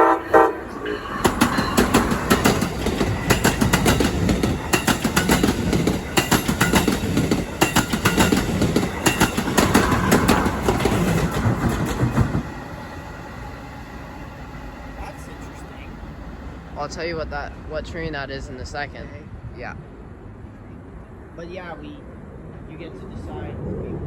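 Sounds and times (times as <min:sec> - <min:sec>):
train rumble: 0:00.0 - 0:24.0
train wheels clattering on rail joints: 0:00.8 - 0:12.7.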